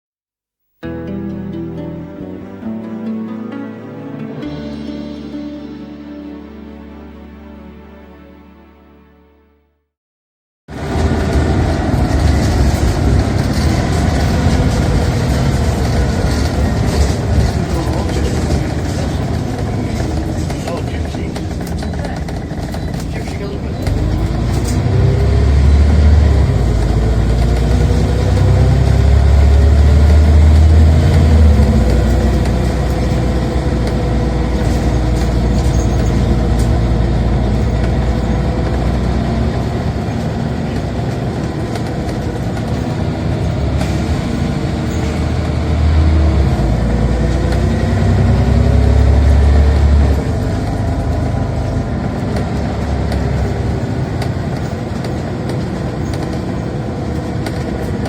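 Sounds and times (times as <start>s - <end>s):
bus engine accelerating: 0.8s - 8.8s, 10.7s - 58.0s
gearbox whine: 10.7s - 58.0s.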